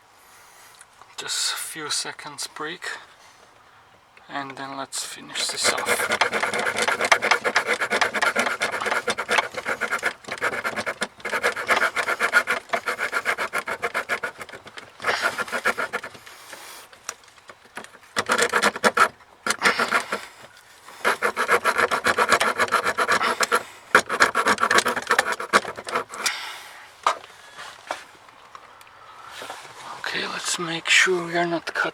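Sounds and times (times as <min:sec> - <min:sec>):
hand saw rasping: 0:05.3 - 0:17.0, 0:17.6 - 0:26.5.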